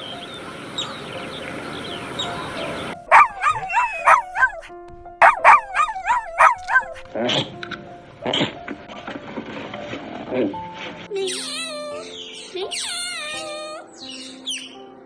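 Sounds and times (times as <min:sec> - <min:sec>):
outdoor hiss: 0:00.0 - 0:03.0
birds chirping: 0:00.0 - 0:04.6, 0:11.2 - 0:15.0
dog barking high yaps: 0:03.1 - 0:07.0.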